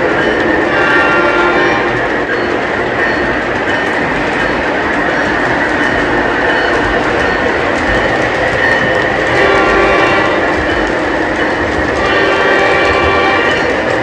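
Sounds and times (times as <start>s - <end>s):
model train wheels rumbling: 0.0s - 14.0s
model locomotive horn: 0.7s - 2.2s, 9.2s - 10.9s, 11.9s - 14.0s.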